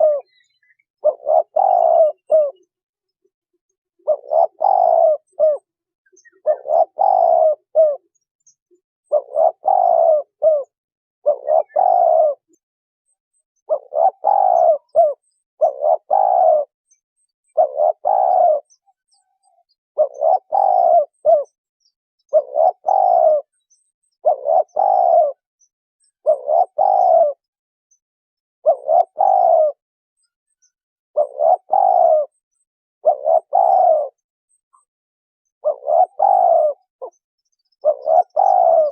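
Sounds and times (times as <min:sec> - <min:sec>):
dove cooing: 0:00.0 - 0:08.2, 0:09.1 - 0:12.6, 0:13.6 - 0:16.8, 0:17.5 - 0:21.6, 0:22.2 - 0:23.6, 0:24.2 - 0:25.5, 0:26.2 - 0:27.5, 0:28.6 - 0:29.8, 0:31.2 - 0:32.4, 0:33.0 - 0:34.9, 0:35.6 - 0:38.9.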